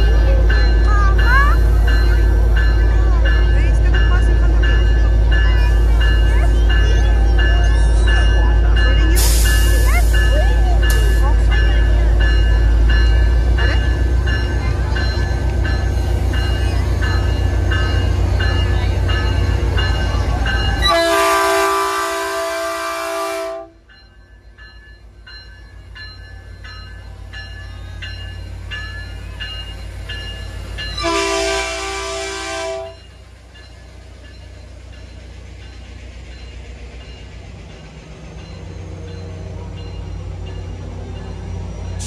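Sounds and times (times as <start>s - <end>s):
bell ringing steadily: 0.0s - 21.0s, 23.9s - 31.4s, 32.9s - 42.0s
diesel locomotive engine rumbling: 0.0s - 42.0s
train horn blasts: 20.8s - 23.8s, 31.0s - 33.0s.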